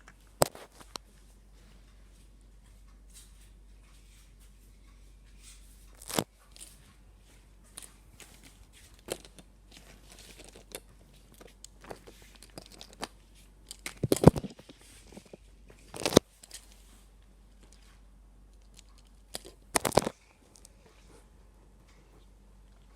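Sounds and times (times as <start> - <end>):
light rustling and crinkling: 0.0 - 22.9.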